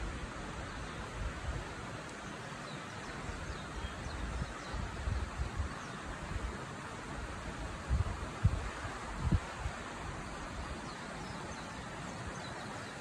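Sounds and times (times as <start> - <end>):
wind buffeting on microphone: 3.3 - 6.6, 7.2 - 10.9.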